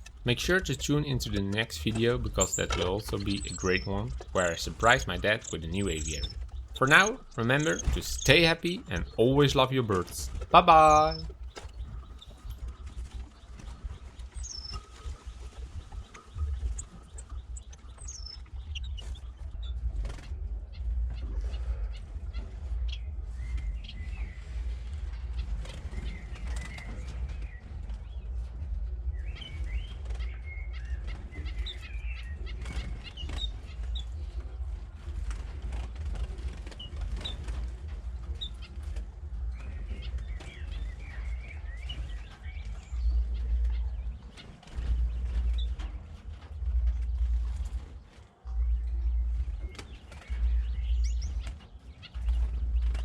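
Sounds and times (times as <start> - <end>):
finches chirping: 0.0 - 20.7, 36.4 - 38.8, 39.4 - 47.6, 48.6 - 53.0
wings fluttering: 0.0 - 53.0
low rumble: 37.5 - 53.0.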